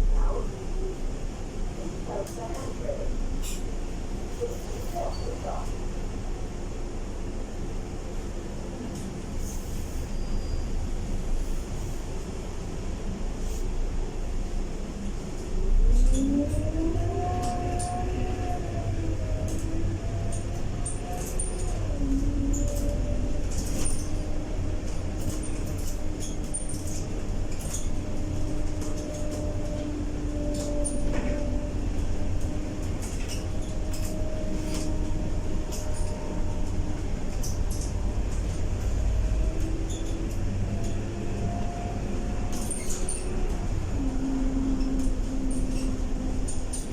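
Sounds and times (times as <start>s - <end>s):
low rumble: 0.0s - 4.4s
bus drivetrain whine: 0.0s - 46.9s
bus body rattling and clicking: 1.4s - 6.5s, 7.8s - 13.4s, 14.4s - 46.9s.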